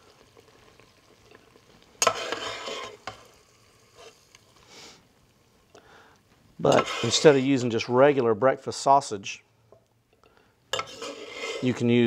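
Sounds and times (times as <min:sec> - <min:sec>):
sausage sizzling in a pot: 0:00.0 - 0:12.0
spoon scraping a pot: 0:02.0 - 0:04.2, 0:06.6 - 0:07.6, 0:10.7 - 0:11.9.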